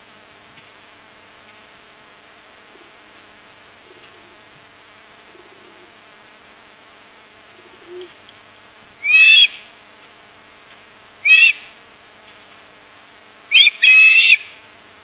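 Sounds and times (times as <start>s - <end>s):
steady background buzz: 0.0s - 15.0s
bird harsh calls: 9.0s - 9.6s, 11.2s - 11.7s, 13.5s - 14.6s.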